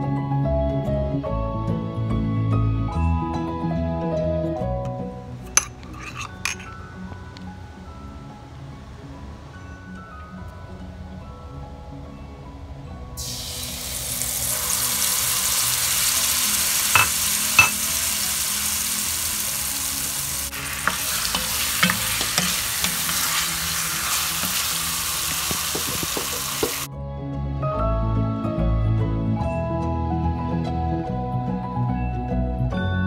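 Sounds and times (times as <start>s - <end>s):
soft music: 0.0s - 33.0s
food sizzling in hot oil: 5.6s - 6.7s, 13.2s - 26.9s
knocks against a pan: 17.0s - 17.8s, 25.5s - 26.9s.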